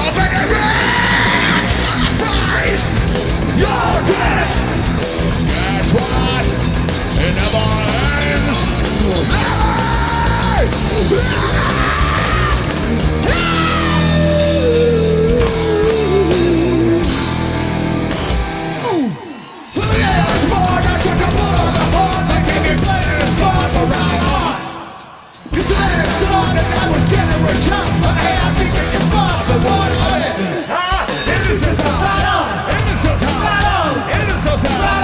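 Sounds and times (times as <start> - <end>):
rock band playing live: 0.0 - 35.0
person yelling vocals: 3.5 - 4.8, 9.1 - 17.1.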